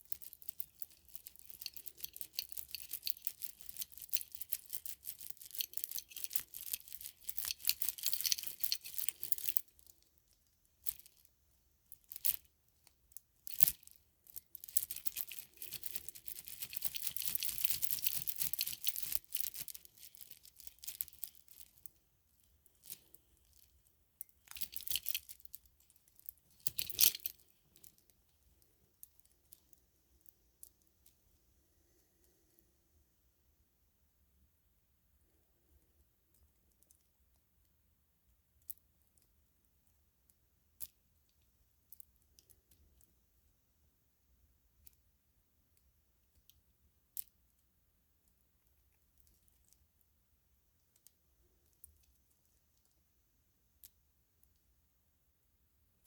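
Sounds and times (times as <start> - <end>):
plastic string of lights rustling: 0.0 - 11.3, 12.0 - 31.2.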